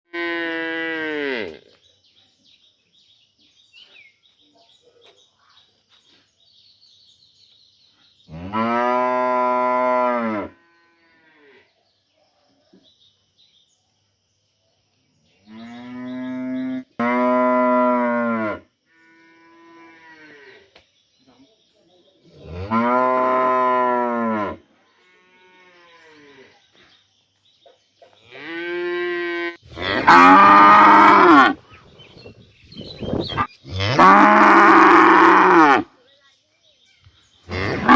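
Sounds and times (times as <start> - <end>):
cattle mooing: 28.4 - 31.6, 33.4 - 35.9, 37.5 - 37.9.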